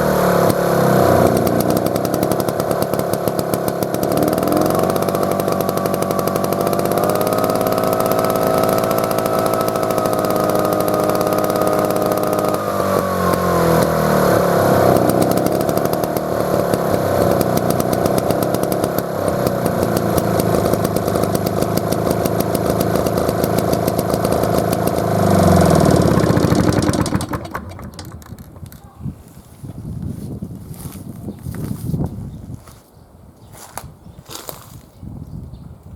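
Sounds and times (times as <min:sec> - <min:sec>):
outboard engine running: 0:00.0 - 0:28.6.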